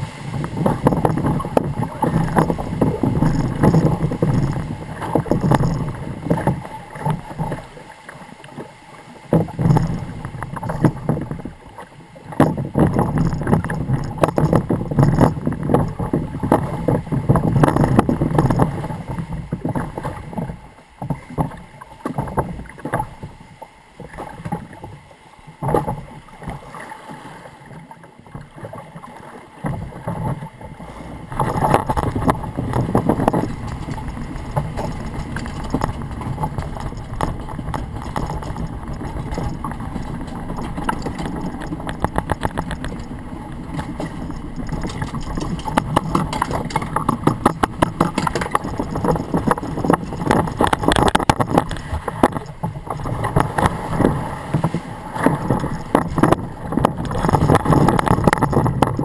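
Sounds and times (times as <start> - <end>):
water sloshing and gurgling: 0.0 - 59.0.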